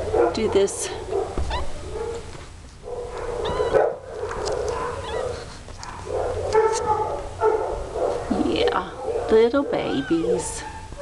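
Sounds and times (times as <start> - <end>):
kittens mewing: 3.1 - 5.9, 8.2 - 11.0.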